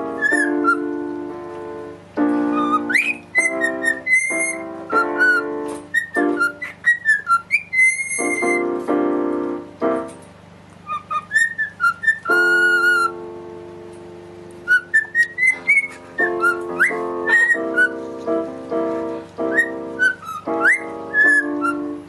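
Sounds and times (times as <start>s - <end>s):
cockatiel whistling: 0.0s - 1.1s, 2.3s - 8.8s, 10.8s - 13.2s, 14.6s - 18.2s, 19.4s - 22.0s
piano chords: 0.0s - 22.0s.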